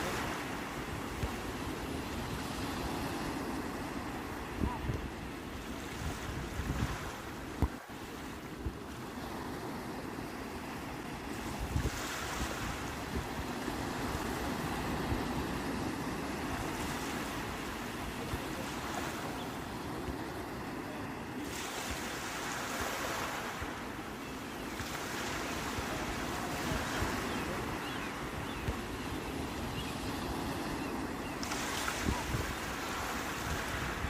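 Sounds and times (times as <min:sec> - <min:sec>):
sea waves washing on shore: 0:00.0 - 0:34.0.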